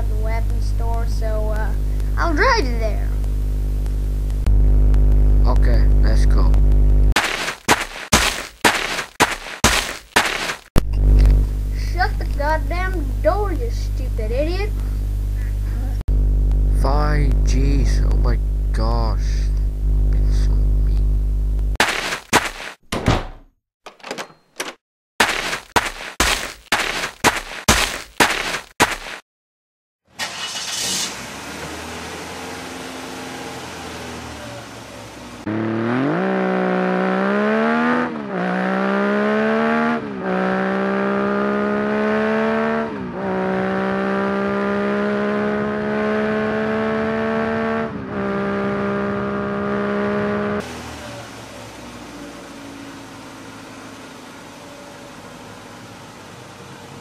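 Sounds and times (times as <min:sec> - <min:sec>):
motorbike engine accelerating: 0:31.3 - 0:54.3.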